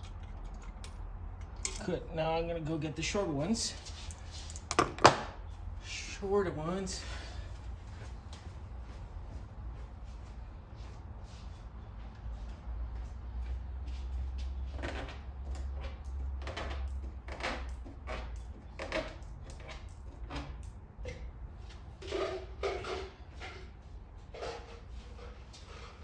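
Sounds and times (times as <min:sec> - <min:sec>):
scrapes clicks and knocks of parts: 0:00.0 - 0:02.0, 0:03.8 - 0:05.2.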